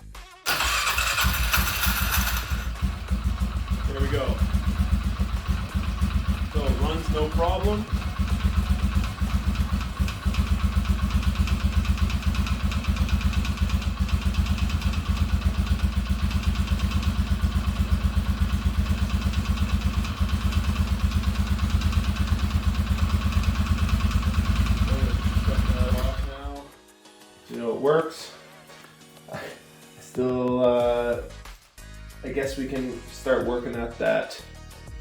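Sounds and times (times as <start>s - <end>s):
atv engine idling: 0.5s - 26.6s.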